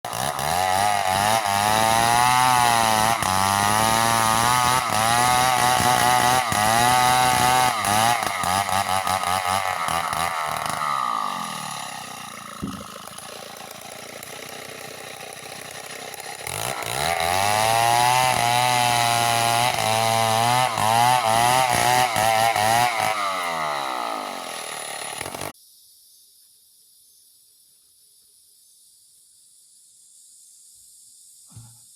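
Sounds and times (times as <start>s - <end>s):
chainsaw cutting wood: 0.0s - 25.6s.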